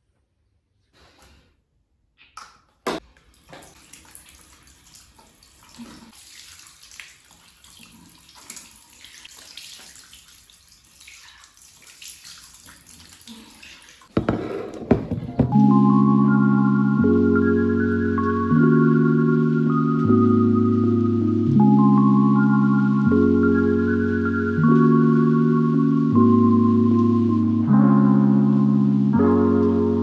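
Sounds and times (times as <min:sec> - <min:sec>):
water running from tap: 0:03.2 - 0:14.1
loud knocks: 0:14.2 - 0:15.6.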